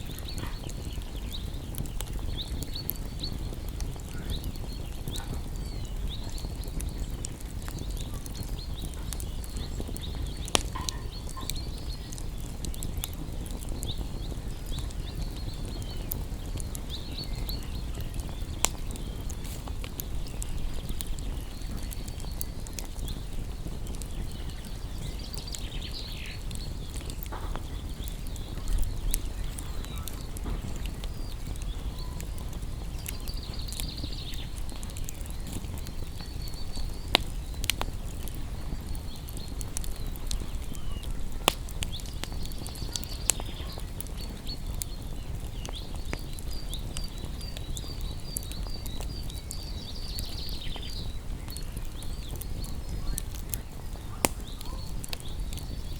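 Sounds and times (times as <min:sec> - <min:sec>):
wood fire crackling: 0:00.0 - 0:55.9
faint high chirping: 0:23.9 - 0:37.8.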